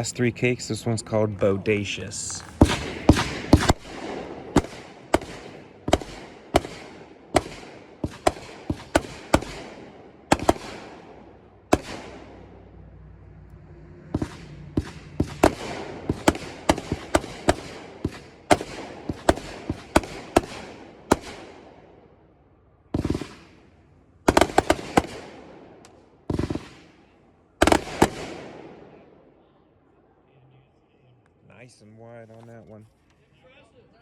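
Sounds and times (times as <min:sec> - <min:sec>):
firework shots banging: 0:01.4 - 0:12.7, 0:14.0 - 0:21.8, 0:23.0 - 0:29.0.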